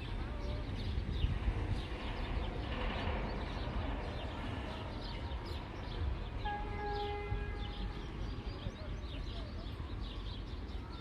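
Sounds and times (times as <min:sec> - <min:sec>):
steady low rumble: 0:00.0 - 0:06.4
small birds chirping: 0:00.0 - 0:11.0.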